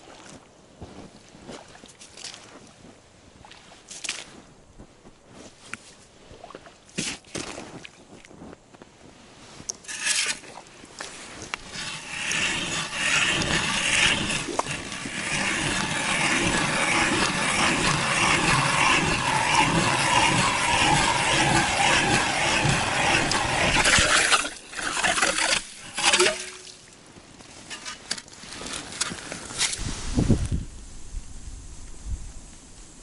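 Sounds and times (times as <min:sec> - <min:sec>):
ice auger grinding into ice: 0:09.8 - 0:26.8.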